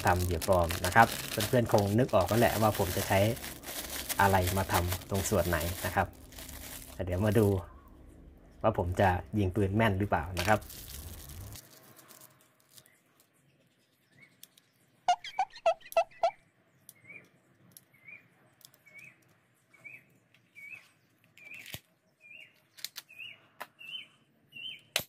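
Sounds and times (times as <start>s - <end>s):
bird chirping: 12.8s - 24.9s.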